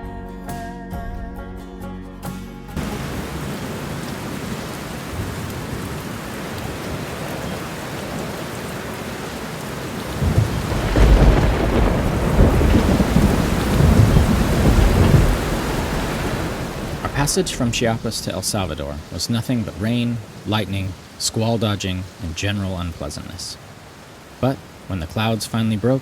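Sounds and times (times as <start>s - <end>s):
thunder rumbling: 2.8s - 20.6s
steady rain: 2.8s - 26.0s.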